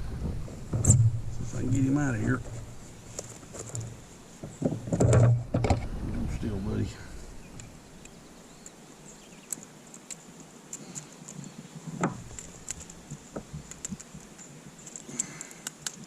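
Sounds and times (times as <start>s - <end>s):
fishing hooks clicking and rattling: 13.7s - 16.0s.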